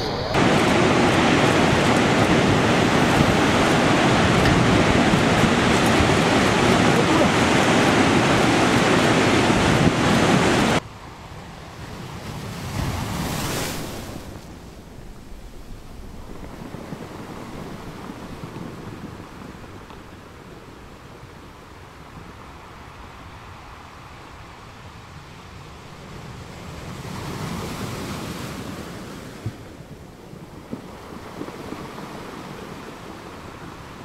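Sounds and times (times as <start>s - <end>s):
wave breaking: 0.0s - 10.8s, 11.8s - 20.4s
ocean surf: 0.0s - 34.0s
wind on microphone: 0.0s - 34.0s.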